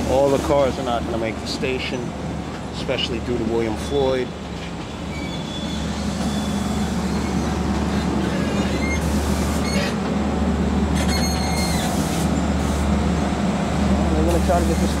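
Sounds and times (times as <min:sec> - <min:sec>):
train engine low drone: 0:00.0 - 0:15.0
high-pitched wheel squeals: 0:05.0 - 0:10.0, 0:11.0 - 0:12.0.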